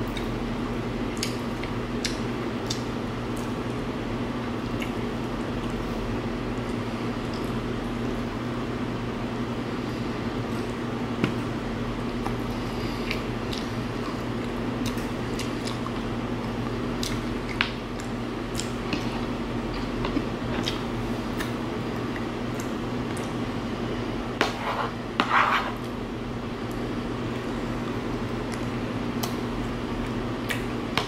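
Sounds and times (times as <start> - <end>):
low steady hum: 0.0 - 31.0
wet chewing and lip-smacking: 1.1 - 3.8, 12.2 - 19.1, 28.5 - 29.4.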